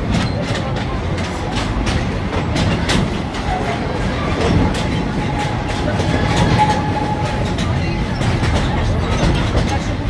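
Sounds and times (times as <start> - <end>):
train rumbling along track: 0.0 - 10.0
wheels clicking over rail joints: 0.0 - 10.0.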